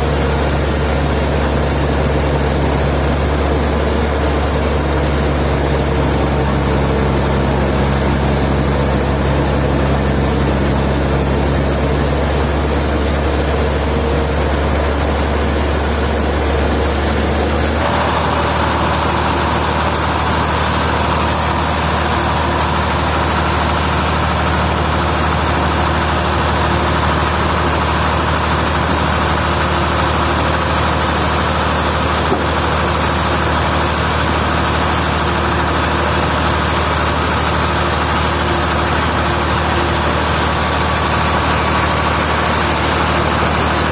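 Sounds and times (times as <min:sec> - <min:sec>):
higher machine hum: 0:00.0 - 0:43.9
sawmill machinery running: 0:00.0 - 0:43.9.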